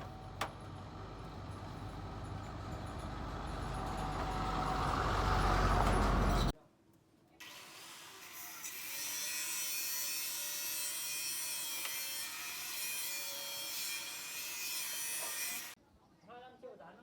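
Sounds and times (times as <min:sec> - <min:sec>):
tool hissing and rasping: 0:07.4 - 0:15.8.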